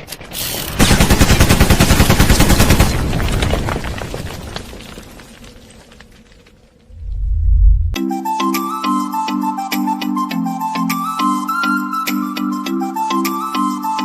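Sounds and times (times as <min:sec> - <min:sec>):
rapid rattle of sharp cracks: 0:00.0 - 0:04.3.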